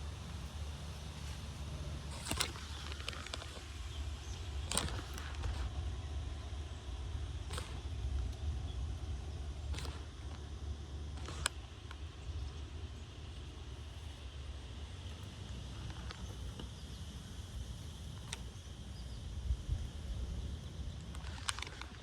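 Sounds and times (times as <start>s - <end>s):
wind buffeting microphone: 15.4s - 22.0s.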